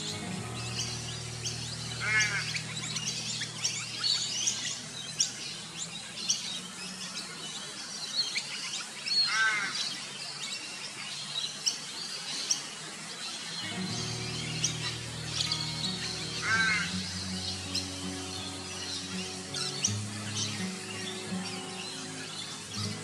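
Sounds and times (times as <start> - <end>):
birds chirping: 0.0 - 23.0
harsh bird chattering call: 0.7 - 4.7, 13.6 - 23.0.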